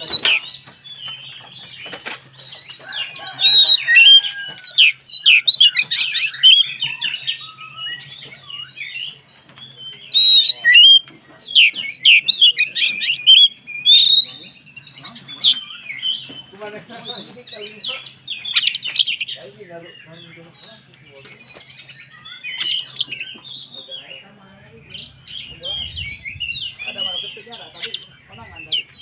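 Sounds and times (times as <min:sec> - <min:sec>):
songbird singing whistles and chatter: 0:00.0 - 0:29.0.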